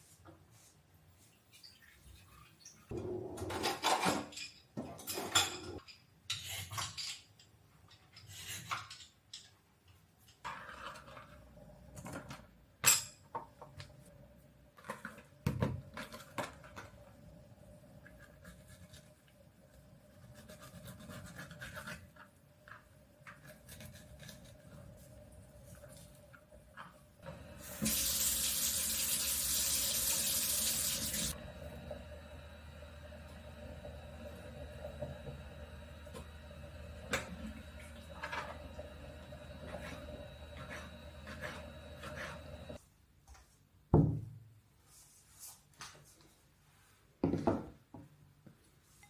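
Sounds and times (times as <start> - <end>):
dishes and cutlery clattering: 3.4 - 9.6
steady low hum: 31.3 - 42.8.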